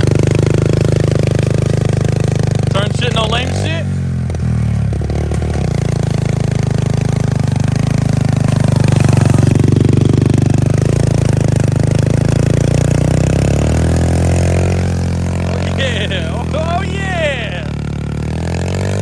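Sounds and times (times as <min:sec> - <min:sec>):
small motorcycle engine running: 0:00.0 - 0:19.0.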